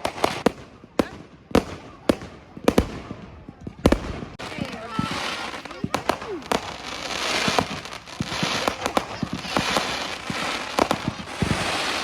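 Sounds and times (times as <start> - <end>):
fireworks bangs and pops: 0.0 - 12.0
fireworks crackling hiss: 3.8 - 12.0.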